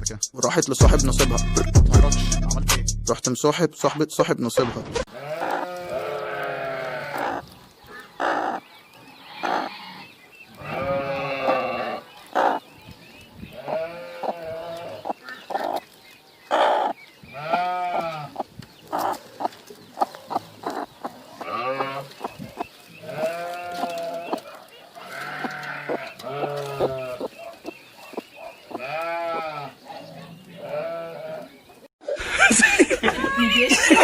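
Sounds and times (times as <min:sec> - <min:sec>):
livestock bleating: 0:05.1 - 0:07.4, 0:09.2 - 0:12.1, 0:13.6 - 0:15.1, 0:17.3 - 0:18.4, 0:21.4 - 0:22.1, 0:23.0 - 0:24.4, 0:25.1 - 0:27.2, 0:28.8 - 0:29.8, 0:30.6 - 0:31.6.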